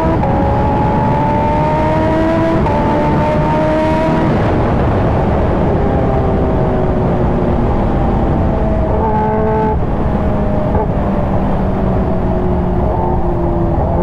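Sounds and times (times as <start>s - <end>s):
heavy wind: 0.0s - 14.0s
road rumble: 0.0s - 14.0s.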